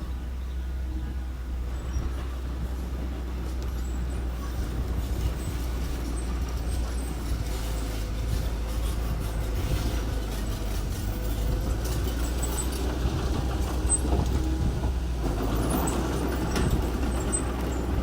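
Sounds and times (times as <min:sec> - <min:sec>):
construction machine engine droning: 0:00.0 - 0:18.0
light clatter: 0:01.7 - 0:18.0.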